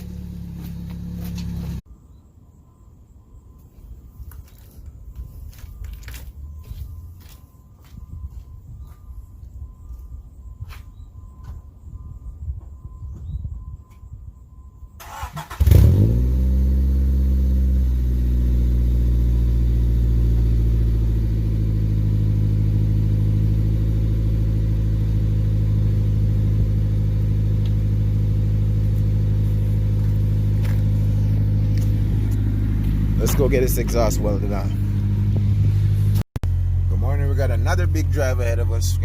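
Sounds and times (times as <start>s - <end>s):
car engine idling: 0.0s - 1.8s, 15.0s - 39.0s
car engine starting: 0.0s - 1.8s, 15.0s - 39.0s.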